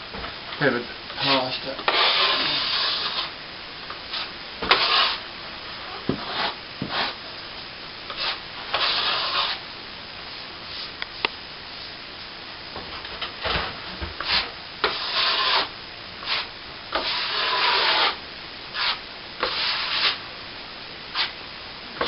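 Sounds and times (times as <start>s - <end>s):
trowel scraping cement: 1.2s - 3.3s, 4.1s - 5.2s, 8.1s - 9.6s, 14.2s - 18.2s, 18.8s - 20.2s.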